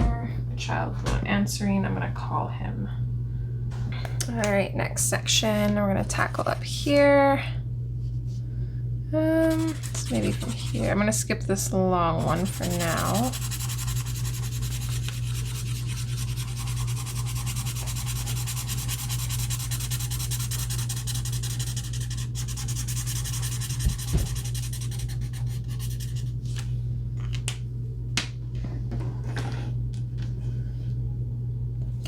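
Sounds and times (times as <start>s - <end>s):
steady low hum: 0.0s - 32.0s
marker rubbing on paper: 9.4s - 11.0s, 12.2s - 26.3s.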